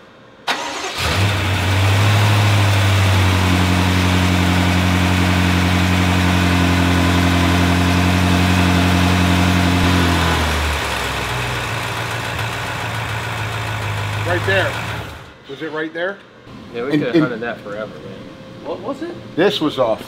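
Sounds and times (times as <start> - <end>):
car engine idling: 0.5 - 15.4.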